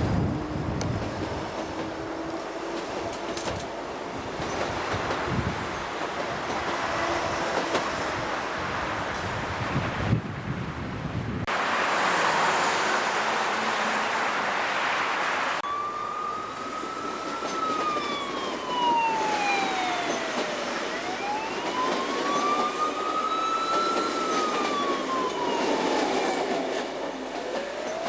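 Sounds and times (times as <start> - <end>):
siren wailing: 15.6 - 28.0.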